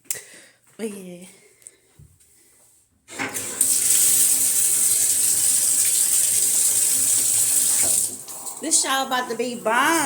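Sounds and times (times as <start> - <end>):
shower water spraying: 3.4 - 9.0.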